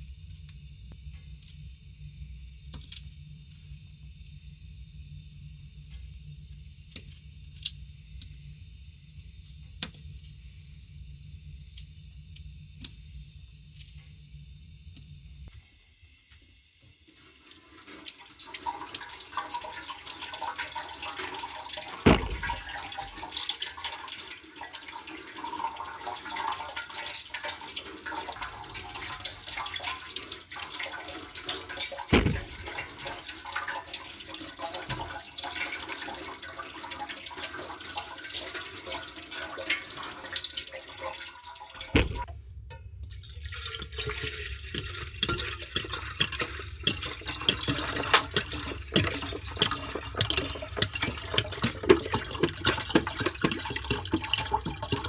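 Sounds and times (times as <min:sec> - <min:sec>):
water splashing and trickling: 0:21.8 - 0:24.1, 0:25.4 - 0:42.3, 0:43.2 - 0:55.0
sharp knocks: 0:22.1 - 0:22.8, 0:32.1 - 0:32.8, 0:42.0 - 0:42.3.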